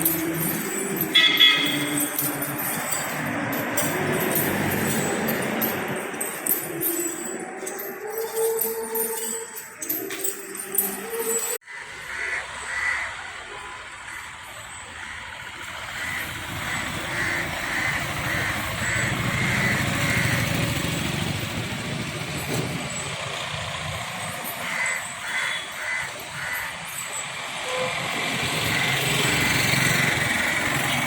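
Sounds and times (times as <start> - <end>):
crow cawing: 11.6 - 13.4, 15.9 - 20.5, 24.6 - 26.9
vehicle engine running: 15.0 - 26.6.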